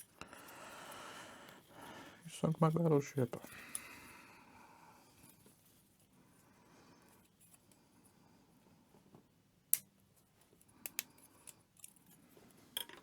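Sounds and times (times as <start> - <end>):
plastic model parts clicking: 10.8 - 12.0.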